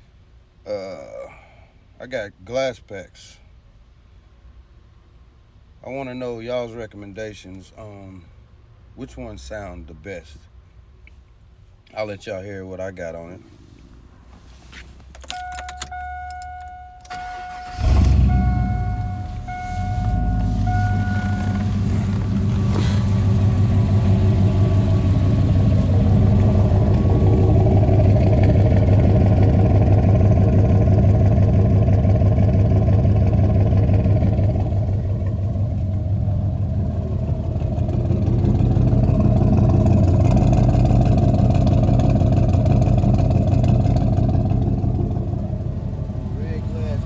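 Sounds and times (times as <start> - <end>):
deep engine exhaust rumble: 15.6 - 47.0.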